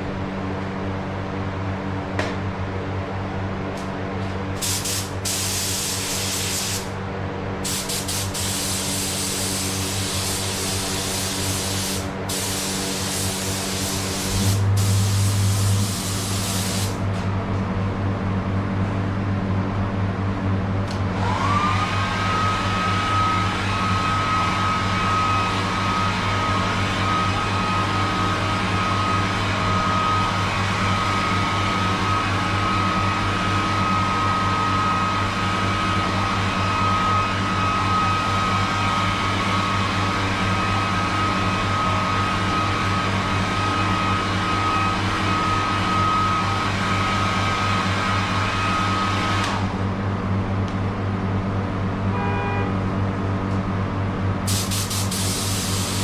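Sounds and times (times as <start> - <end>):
low machine hum: 0.0 - 48.8
spray gun air hiss and whistle: 4.6 - 6.9, 7.6 - 17.0, 54.5 - 56.0.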